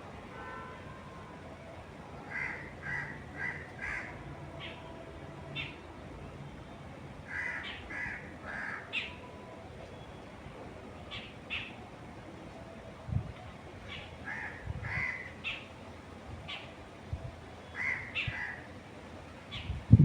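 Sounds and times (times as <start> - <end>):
faint steady wind: 0.0 - 20.0
wild birds calling: 2.3 - 5.8, 7.2 - 9.3, 13.8 - 15.8, 17.6 - 18.8
wind gusts buffeting microphone: 14.6 - 15.1, 19.6 - 20.0.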